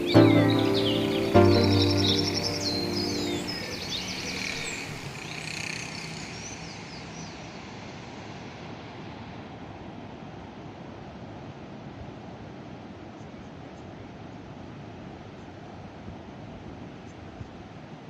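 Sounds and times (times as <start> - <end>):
birds chirping: 0.0 - 7.4
ocean surf: 0.0 - 11.8.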